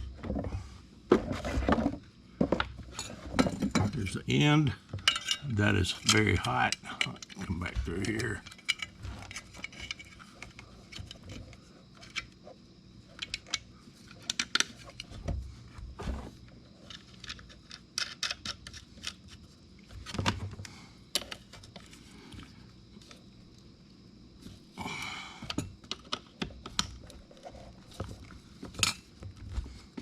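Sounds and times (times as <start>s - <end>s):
metal hardware clicks and rattles: 2.9s - 12.3s.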